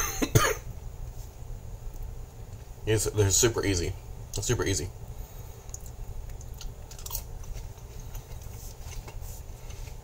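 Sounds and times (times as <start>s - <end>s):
low steady hum: 0.0s - 10.0s
person chewing crunchy food: 5.6s - 9.2s.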